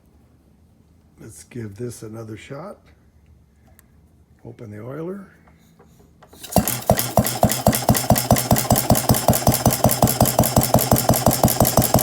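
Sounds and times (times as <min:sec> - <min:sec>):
small engine knocking beat: 0:06.4 - 0:12.0.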